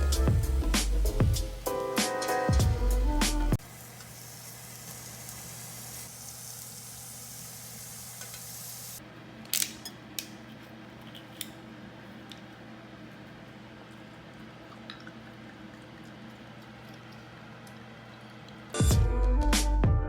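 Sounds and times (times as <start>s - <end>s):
food sizzling in a pan: 0.0s - 9.0s.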